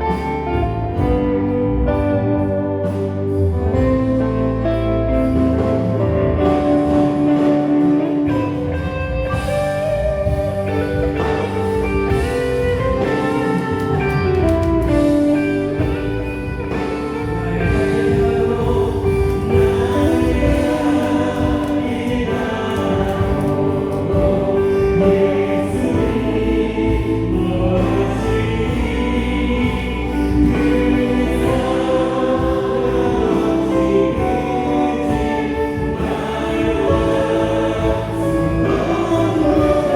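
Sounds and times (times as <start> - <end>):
live band playing: 0.0 - 39.9
group singing: 4.6 - 39.9.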